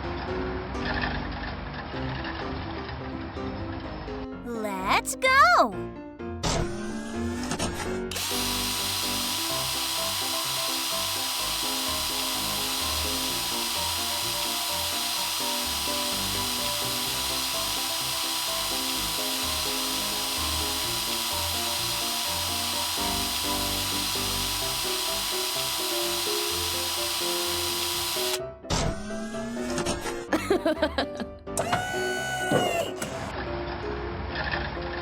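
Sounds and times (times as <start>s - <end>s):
background music: 4.0s - 34.2s
cartoon rock drill whine: 6.5s - 30.8s.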